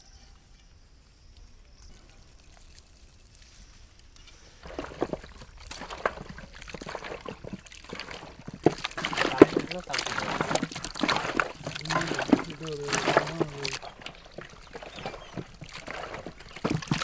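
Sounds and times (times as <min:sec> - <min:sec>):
hands squelching wet marinade: 0:04.6 - 0:17.0.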